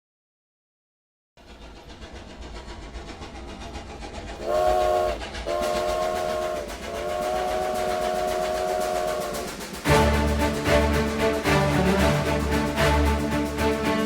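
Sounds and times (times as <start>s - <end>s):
train rumbling and clattering: 1.4s - 14.0s
train whistle blasts: 4.4s - 12.3s.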